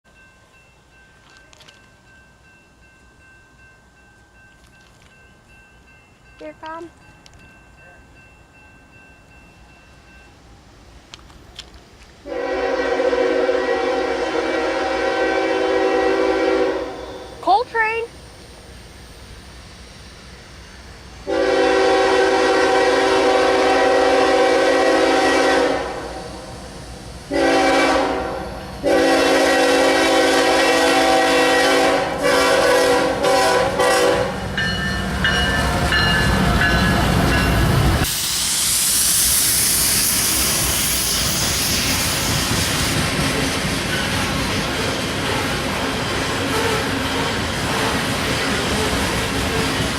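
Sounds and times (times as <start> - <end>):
train wheels rushing on rails: 0.1 - 49.9
locomotive air horn blasts: 12.2 - 17.4, 21.3 - 26.3, 27.3 - 34.4.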